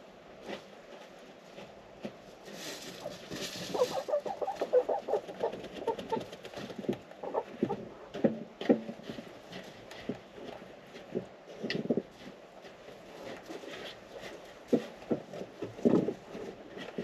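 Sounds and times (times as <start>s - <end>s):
hens clucking: 2.6s - 8.2s.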